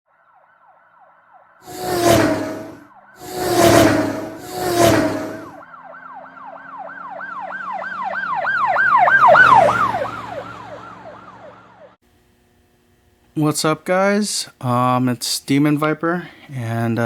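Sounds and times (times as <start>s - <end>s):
yelping siren: 0.4s - 12.0s
whooshing pass-bys: 1.7s - 5.6s
low engine hum: 1.7s - 8.6s.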